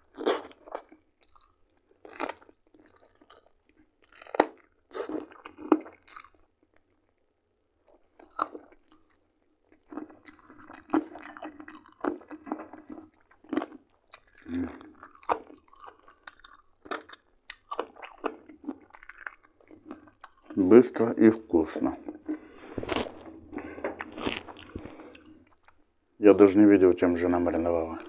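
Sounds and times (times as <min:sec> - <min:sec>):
chewing meat: 0:00.0 - 0:23.1, 0:24.0 - 0:25.9
sharp crunches and clicks: 0:21.6 - 0:25.8.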